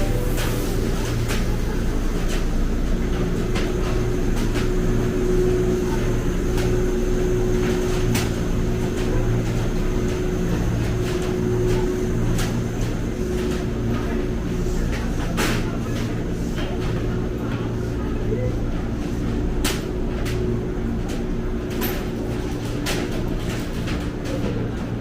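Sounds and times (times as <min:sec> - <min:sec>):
faint held tone: 0:00.0 - 0:01.6
low mechanical hum: 0:00.0 - 0:25.0.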